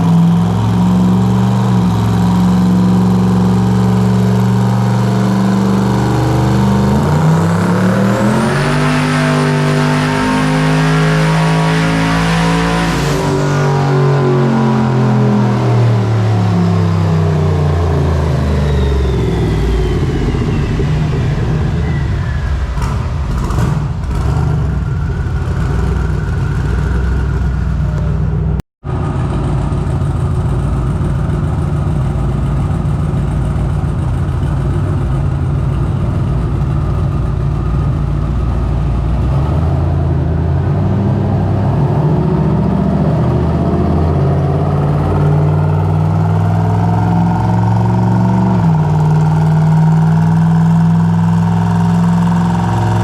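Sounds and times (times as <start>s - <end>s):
engine revving on dyno: 0.0s - 27.9s, 38.5s - 53.0s.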